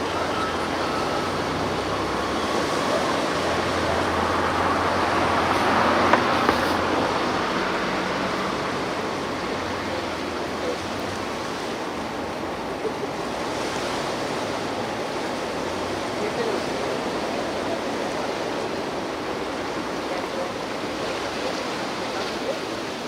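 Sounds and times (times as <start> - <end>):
road vehicle passing: 0.0 - 22.6
sea surf washing: 0.0 - 23.0.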